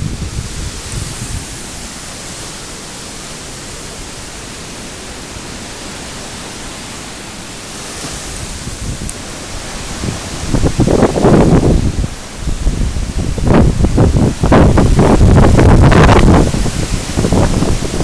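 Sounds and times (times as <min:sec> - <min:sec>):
strong wind rushing: 0:00.0 - 0:02.5, 0:07.7 - 0:18.0
wind buffeting microphone: 0:00.0 - 0:02.6, 0:07.7 - 0:18.0.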